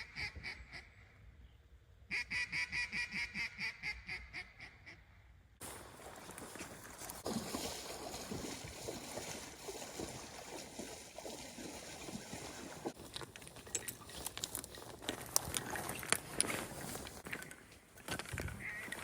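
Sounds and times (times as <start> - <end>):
water sloshing: 5.6 - 19.0.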